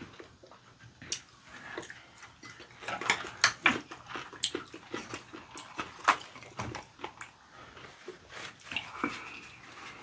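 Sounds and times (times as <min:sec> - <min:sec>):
chewing and wet lip-smacking: 0:01.0 - 0:07.4.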